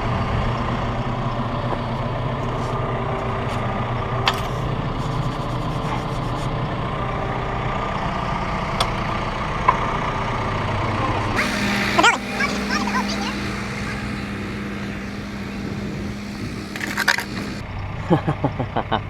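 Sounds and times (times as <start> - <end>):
diesel engine idling: 11.4 - 17.6.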